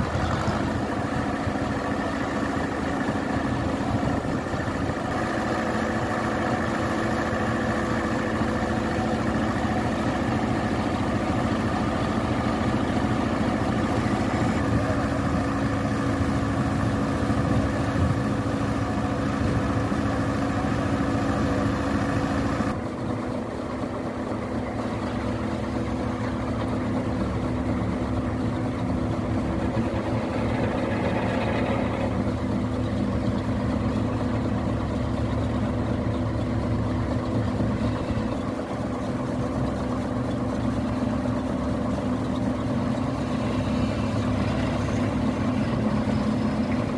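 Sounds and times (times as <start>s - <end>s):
diesel construction machinery running: 0.0s - 46.9s.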